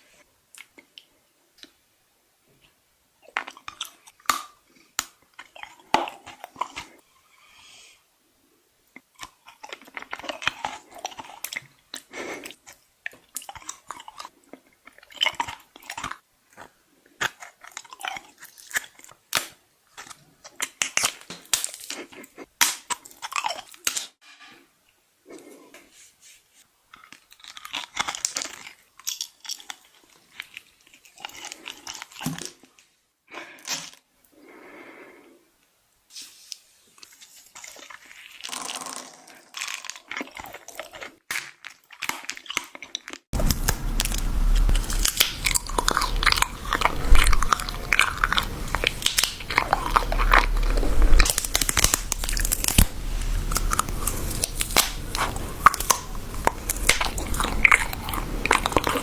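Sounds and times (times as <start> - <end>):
crunchy chewing: 9.2 - 24.0, 26.9 - 32.6, 37.0 - 59.0
steady low hum: 43.4 - 59.0.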